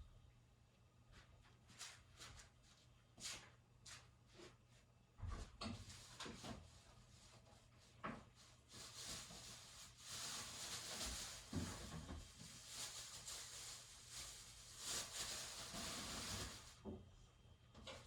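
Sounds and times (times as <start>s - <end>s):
fireplace flame hissing: 5.8s - 18.0s.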